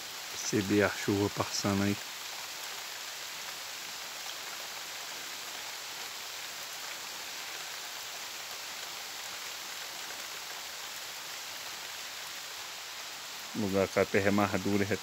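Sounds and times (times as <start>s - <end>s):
rain falling on foliage: 0.0s - 15.0s.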